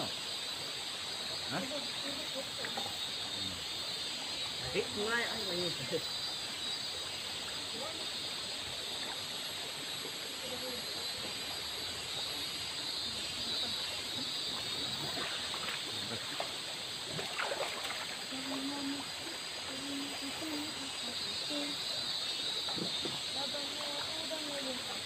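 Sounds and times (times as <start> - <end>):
river flowing over stones: 6.3 - 25.0
hands splashing in water: 17.1 - 18.2.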